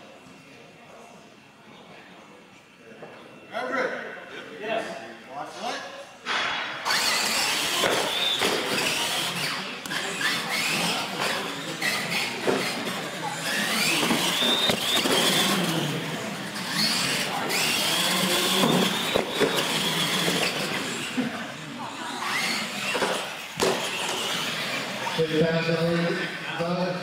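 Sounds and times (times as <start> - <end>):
rc truck motor whine: 6.8 - 26.5.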